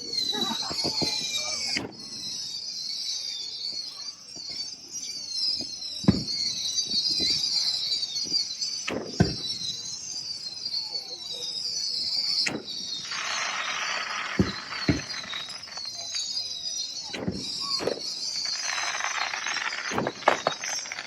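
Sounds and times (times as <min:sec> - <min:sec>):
fireworks loud bangs: 0:00.0 - 0:02.4, 0:05.5 - 0:10.0, 0:12.0 - 0:21.0
fireworks whistling and screeching: 0:00.0 - 0:21.0.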